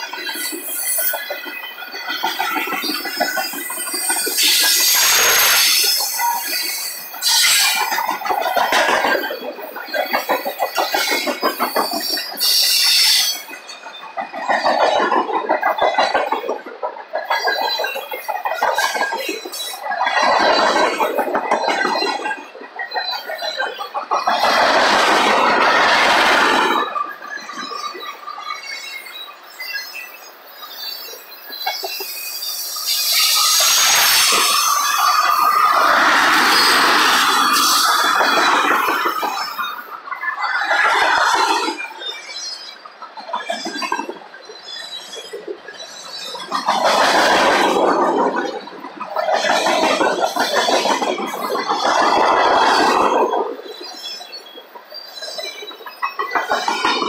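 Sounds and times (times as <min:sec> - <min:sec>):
steel wheels clattering on rails: 0:00.0 - 0:57.0
high-pitched wheel squeals: 0:00.2 - 0:14.2, 0:26.8 - 0:46.8.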